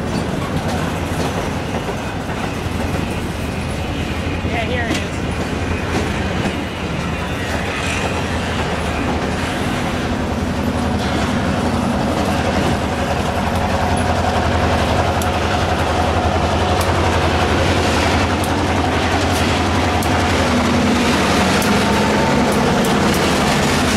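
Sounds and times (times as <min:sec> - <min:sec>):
wheels clicking over rail joints: 0:00.0 - 0:03.8, 0:04.4 - 0:23.9
locomotive hum: 0:00.0 - 0:23.9.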